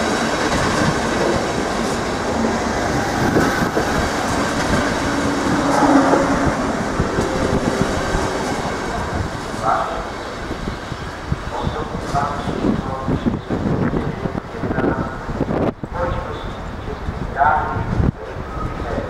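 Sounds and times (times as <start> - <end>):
train wheels clattering over rail joints: 0.0 - 11.0
train rolling rumble: 0.0 - 19.0.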